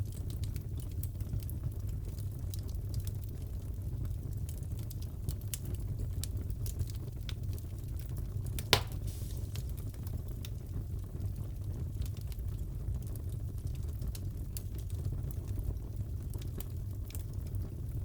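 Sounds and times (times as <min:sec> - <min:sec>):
wood fire crackling: 0:00.0 - 0:18.0
loud sharp pop: 0:08.6 - 0:09.6.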